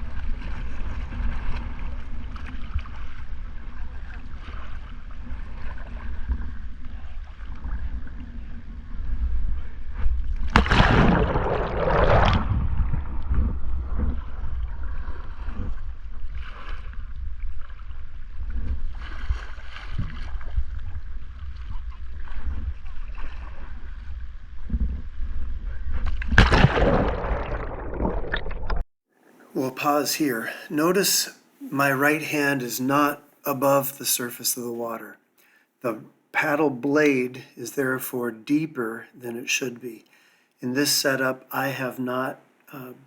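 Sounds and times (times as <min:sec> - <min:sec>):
water splashing around a kayak: 0:00.0 - 0:30.5
low wind rumble on microphone: 0:12.1 - 0:26.5.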